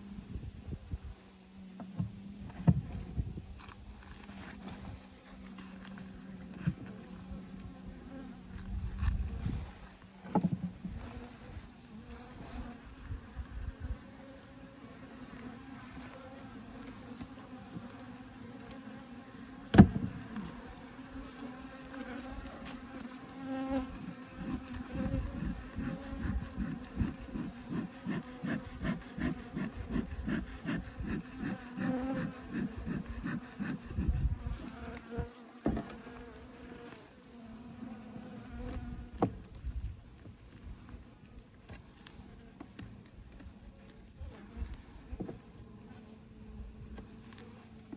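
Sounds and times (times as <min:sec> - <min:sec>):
bees buzzing: 0:18.2 - 0:35.4.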